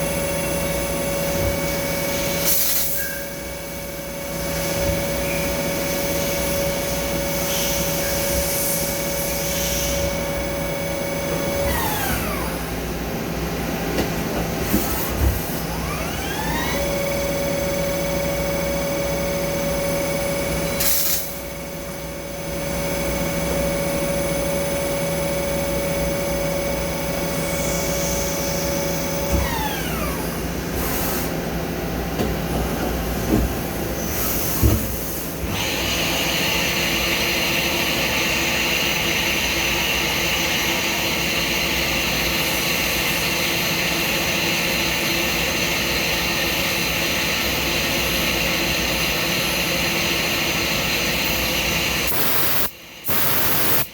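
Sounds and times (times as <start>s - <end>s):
machine motor whining: 7.9s - 12.9s, 14.7s - 20.6s, 23.2s - 31.2s, 50.5s - 53.9s.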